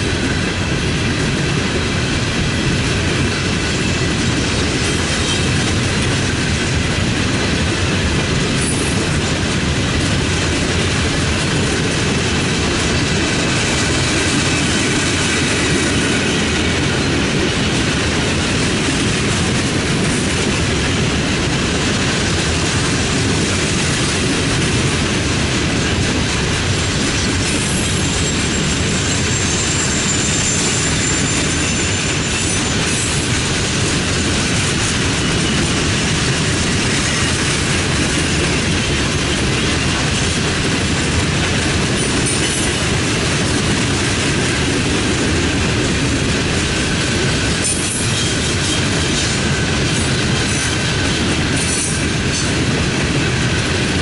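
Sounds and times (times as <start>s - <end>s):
freight train wheels clattering: 0.0s - 54.0s
high wheel squeal: 27.4s - 33.6s.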